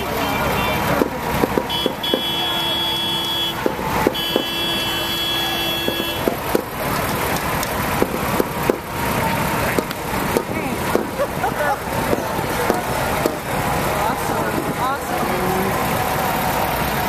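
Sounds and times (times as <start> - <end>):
vehicle horn blasts: 0.0 - 1.0, 1.7 - 6.4
street noise: 0.0 - 17.0
sharp clicks: 6.1 - 8.9.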